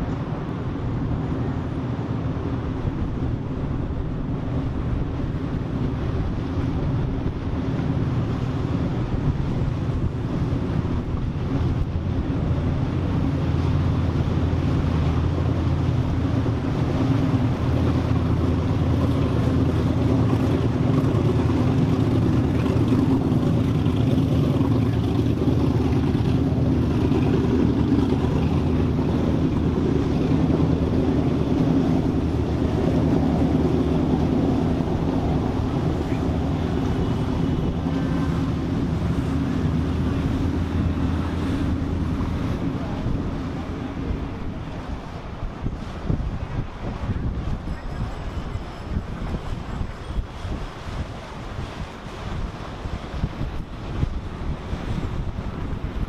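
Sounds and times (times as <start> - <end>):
boat engines droning: 0.0 - 56.0.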